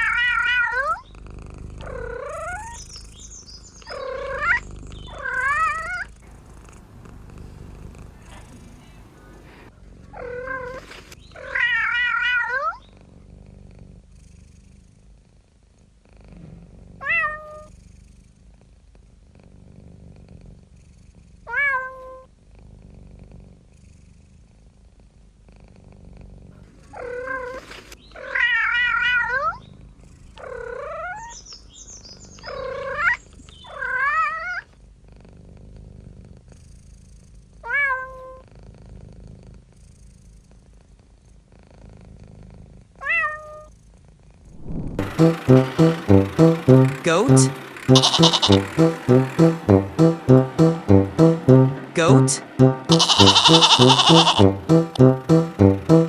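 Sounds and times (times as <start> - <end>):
cat purring: 0.5 - 3.2, 3.9 - 11.0, 12.6 - 21.4, 22.4 - 24.3, 25.4 - 27.3
cat meowing: 47.9 - 48.5, 52.9 - 54.4.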